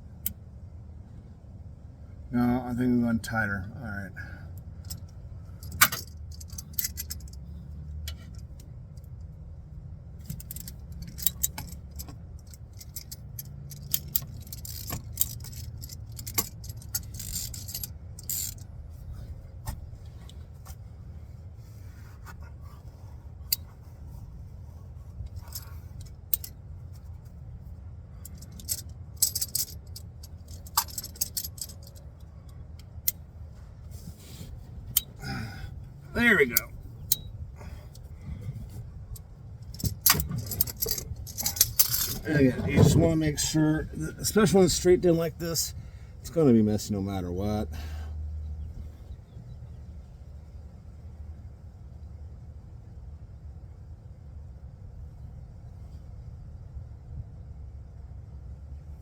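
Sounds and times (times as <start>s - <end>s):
steady low hum: 0.0s - 59.0s
metal hand tools clinking: 39.7s - 43.0s.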